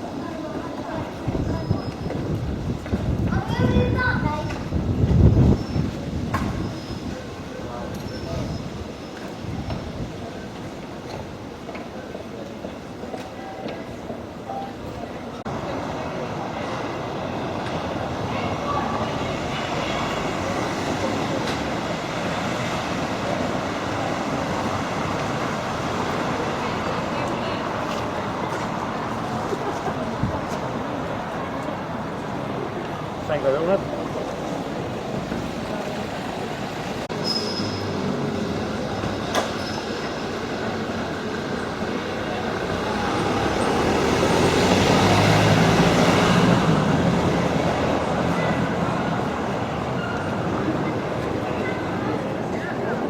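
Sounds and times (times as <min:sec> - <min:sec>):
large vehicle running: 0:15.3 - 0:53.0
thin high squeal: 0:37.2 - 0:38.0.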